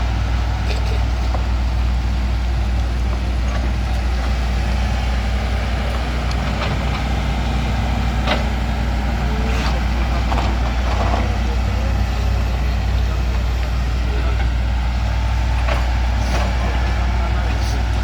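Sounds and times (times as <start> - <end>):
diesel engine droning: 0.0 - 18.0.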